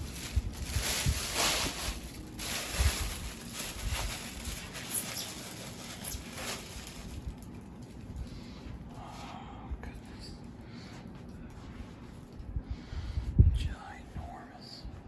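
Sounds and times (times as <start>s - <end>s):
packaging rustling and scraping: 0.0s - 8.4s.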